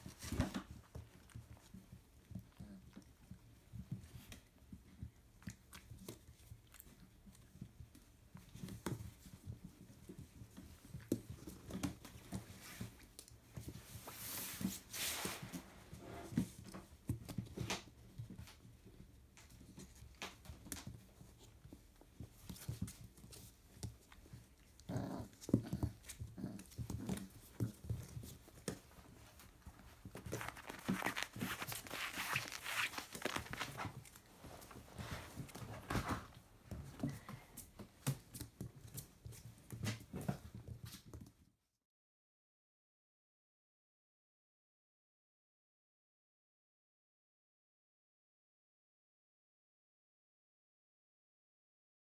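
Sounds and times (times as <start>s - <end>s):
puppies scuffling and mouthing: 0.0s - 41.5s.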